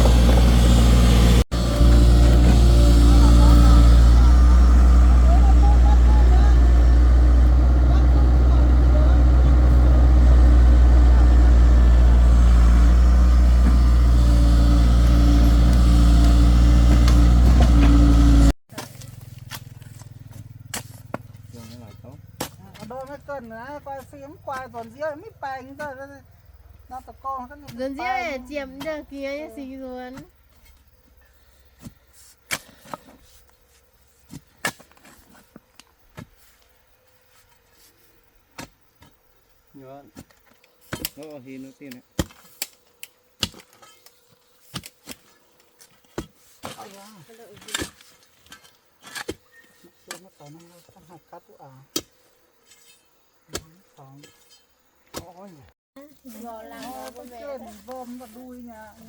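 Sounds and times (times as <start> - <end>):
engine running with deep hum: 0.0 - 22.7.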